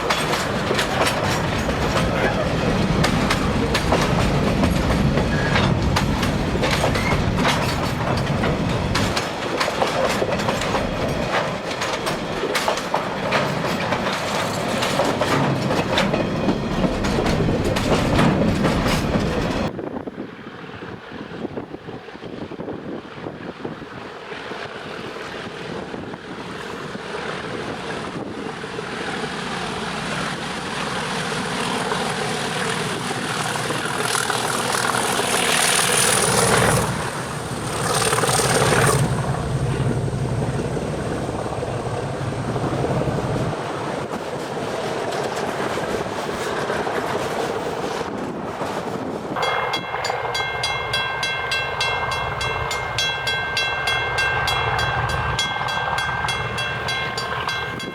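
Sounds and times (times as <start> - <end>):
freight wagons running by: 0.0 - 19.7, 27.0 - 44.2
diesel locomotive engines: 0.0 - 57.9.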